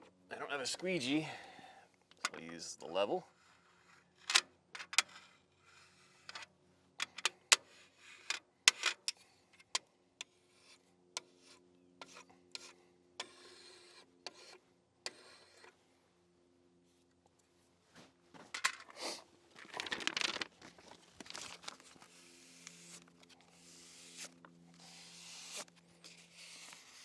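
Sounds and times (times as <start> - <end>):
scraping over vinyl decal: 10.4 - 15.8, 21.4 - 27.0.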